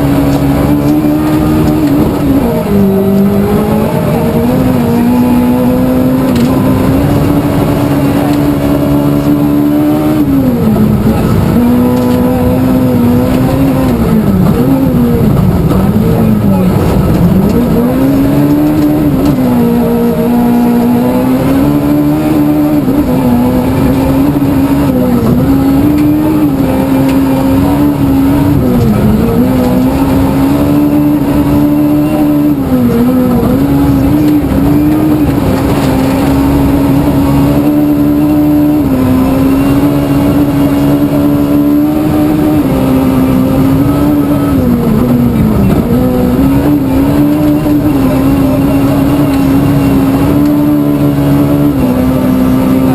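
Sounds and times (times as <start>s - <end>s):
rally car engine at high revs: 0.0s - 52.9s
road noise rumble: 0.0s - 52.9s.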